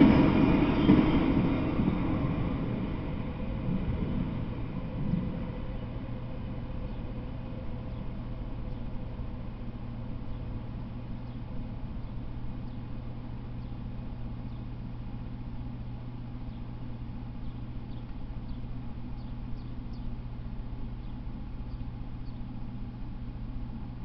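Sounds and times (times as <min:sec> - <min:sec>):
steady low hum: 0:00.0 - 0:24.0
small bird chirping: 0:17.4 - 0:20.2, 0:21.0 - 0:22.6.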